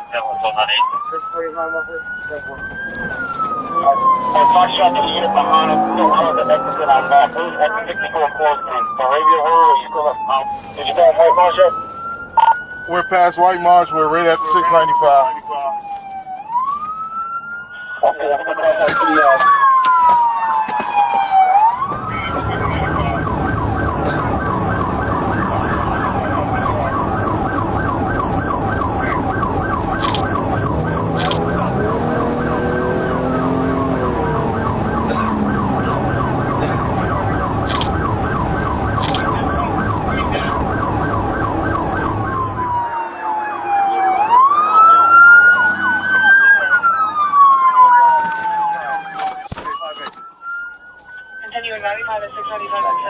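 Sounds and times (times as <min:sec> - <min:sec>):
engine and road rumble: 0:00.0 - 0:09.0, 0:21.0 - 0:52.2
police siren: 0:00.0 - 0:53.0.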